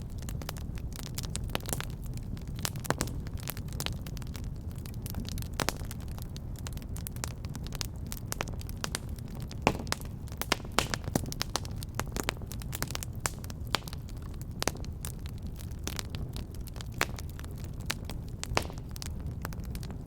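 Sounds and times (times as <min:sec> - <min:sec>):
wood fire crackling: 0:00.0 - 0:20.0
sharp pops and snaps: 0:08.4 - 0:14.9, 0:15.8 - 0:19.9.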